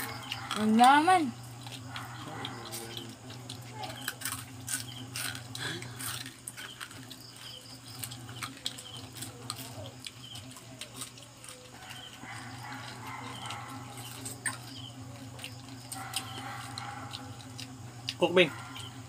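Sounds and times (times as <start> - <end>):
crunching crispy food: 0.0 - 19.0.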